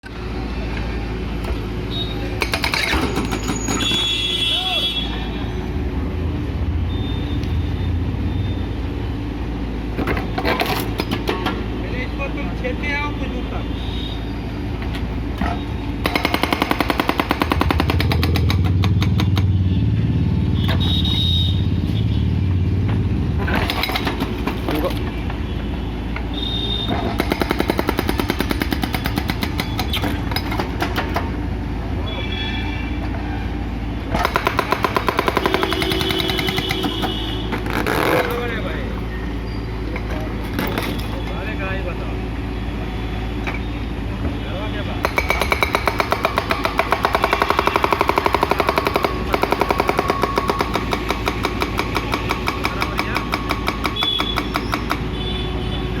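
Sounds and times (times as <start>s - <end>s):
hydraulic rock breaker hammering: 2.4s - 4.1s, 34.1s - 37.6s, 45.0s - 55.1s.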